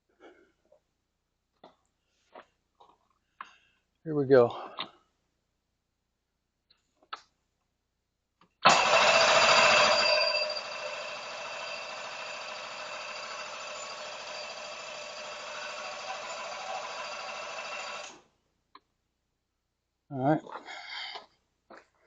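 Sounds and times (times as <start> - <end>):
outboard motor cranking on starter: 8.6 - 18.2.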